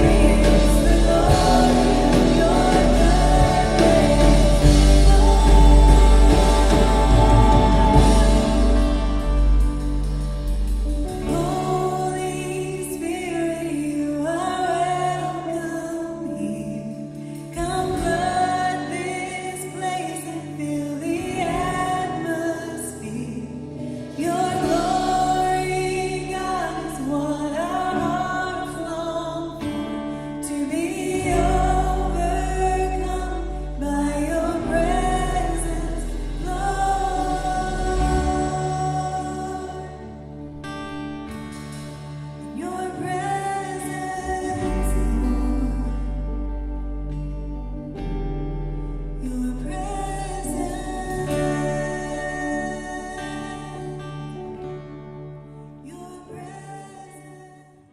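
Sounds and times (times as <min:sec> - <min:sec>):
people singing: 0:00.0 - 0:10.2, 0:11.0 - 0:15.6, 0:24.0 - 0:29.8, 0:30.4 - 0:40.5, 0:49.2 - 0:54.4
worship band playing: 0:00.0 - 0:55.8.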